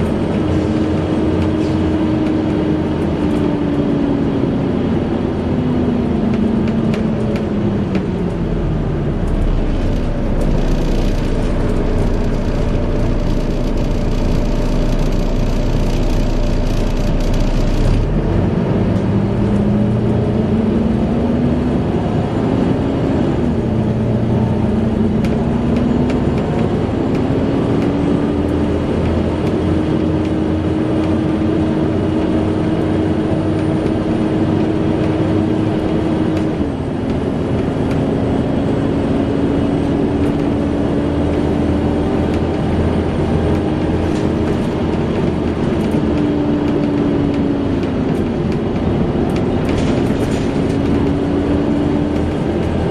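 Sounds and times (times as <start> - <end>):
bus engine and fan whine: 0.0 - 52.9
low hum: 7.4 - 21.0.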